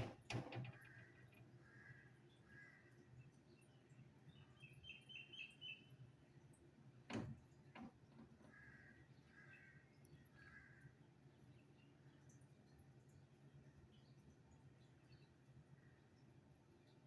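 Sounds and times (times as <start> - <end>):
faint small bird chirps: 0.8 - 6.0.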